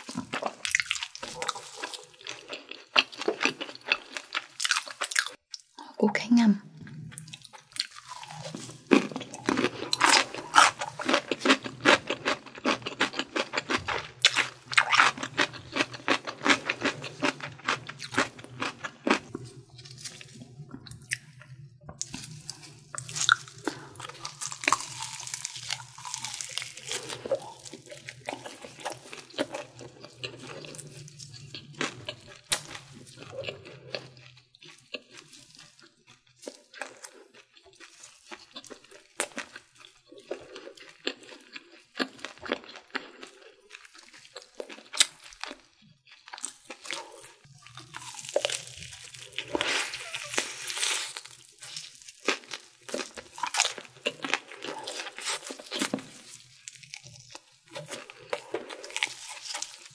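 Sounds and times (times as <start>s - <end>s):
crisp chewing crunches: 0.0s - 5.8s, 7.1s - 59.9s
crackling bite into fried chicken: 22.0s - 35.8s, 43.7s - 59.9s.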